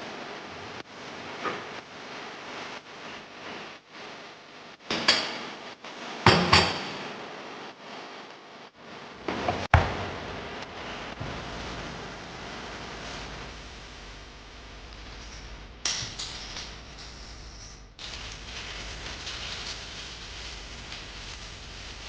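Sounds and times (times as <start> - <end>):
kitchen knocks and bangs: 6.3 - 7.1, 9.3 - 10.2
steady hiss: 10.0 - 22.0.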